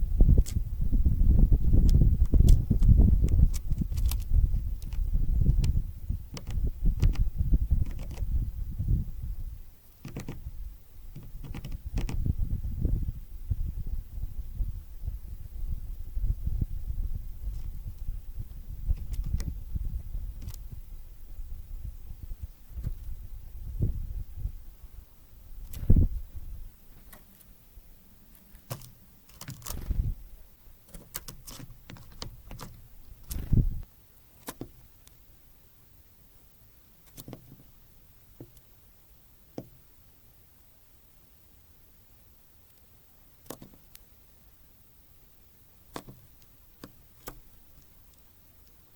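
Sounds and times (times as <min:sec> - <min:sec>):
birds pecking at seed: 0:00.1 - 0:08.7, 0:09.8 - 0:12.5, 0:16.0 - 0:23.6, 0:25.4 - 0:35.5, 0:36.4 - 0:38.8, 0:42.5 - 0:48.9
beaks tapping on bird feeder: 0:01.8 - 0:08.4, 0:10.0 - 0:10.5, 0:11.1 - 0:12.3, 0:30.9 - 0:33.6, 0:43.4 - 0:44.0, 0:45.9 - 0:47.9.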